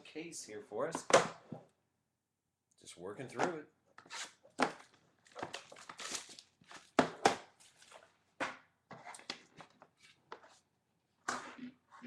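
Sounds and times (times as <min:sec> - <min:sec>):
cardboard and plastic crinkling: 0:04.8 - 0:07.0.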